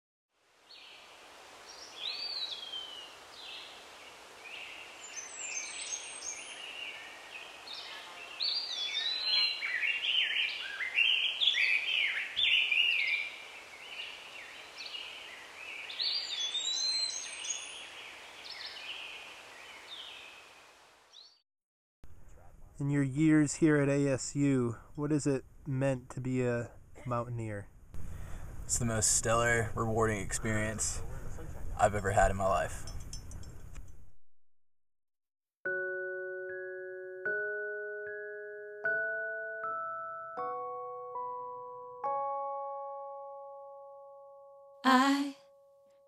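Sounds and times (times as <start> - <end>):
faint outdoor hiss: 0.4 - 21.3, 22.1 - 33.8
songbirds chirping: 0.6 - 21.4.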